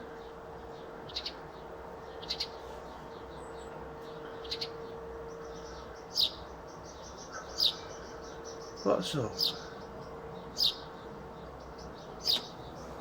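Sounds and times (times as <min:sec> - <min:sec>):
faint steady hum: 0:00.0 - 0:13.0
bird chirping: 0:05.5 - 0:13.0.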